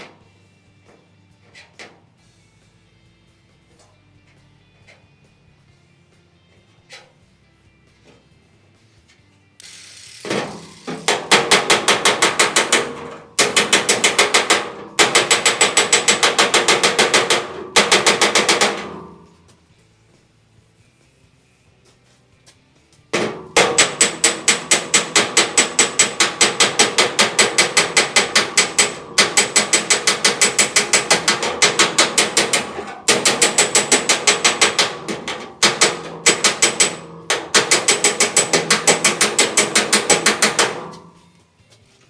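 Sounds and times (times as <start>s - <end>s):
rapid hammer blows on steel: 9.7s - 19.6s, 23.1s - 41.4s.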